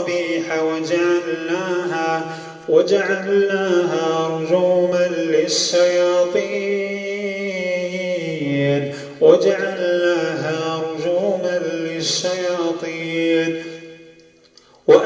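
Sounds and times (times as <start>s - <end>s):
man chanting melodic recitation: 0.0s - 14.2s, 14.8s - 15.0s.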